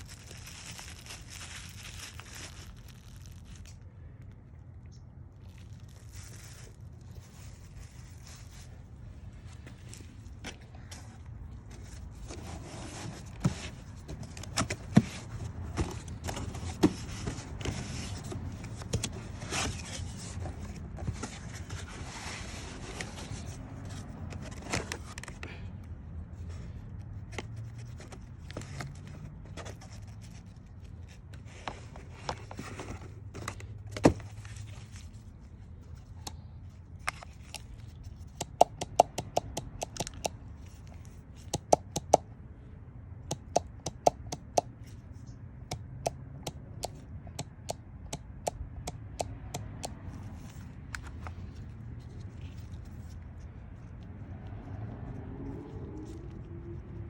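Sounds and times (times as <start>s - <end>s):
hands handling parts and tools: 4.8s - 42.3s.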